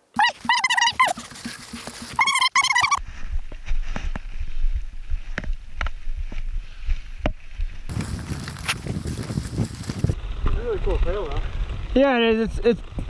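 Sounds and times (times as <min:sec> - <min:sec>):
low wind rumble on microphone: 0:03.0 - 0:13.0.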